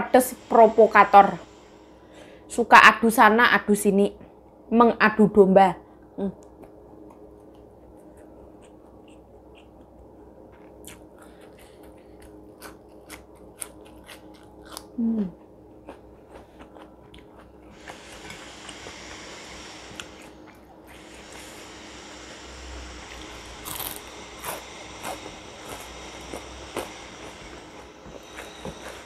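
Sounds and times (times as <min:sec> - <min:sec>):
crunchy chewing: 0:06.4 - 0:22.2, 0:23.0 - 0:29.0.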